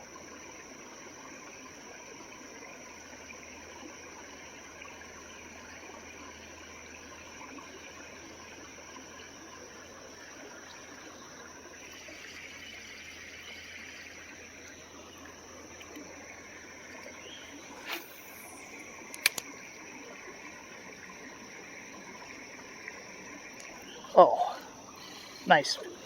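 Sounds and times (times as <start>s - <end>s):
creek trickling: 0.0s - 26.0s
brief swish: 17.8s - 18.5s
sharp double click: 19.1s - 19.5s.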